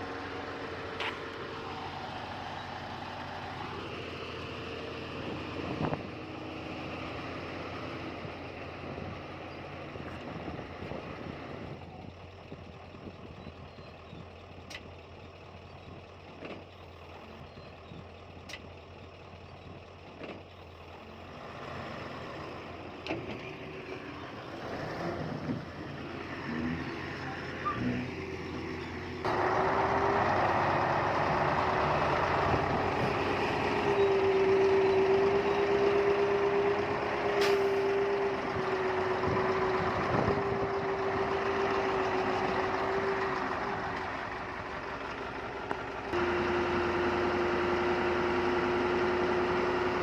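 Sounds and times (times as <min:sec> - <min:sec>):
heavy machinery diesel engines: 0:00.0 - 0:50.0.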